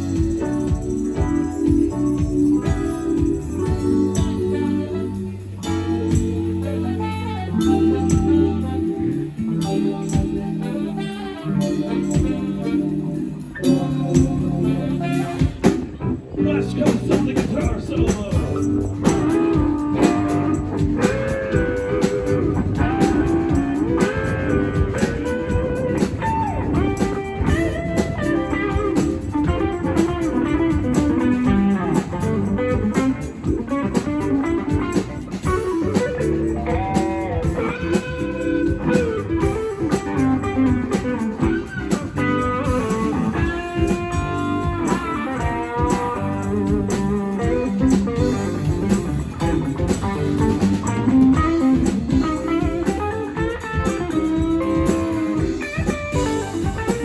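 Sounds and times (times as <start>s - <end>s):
bass and drums: 0.0s - 57.0s
electric guitar solo: 0.0s - 57.0s.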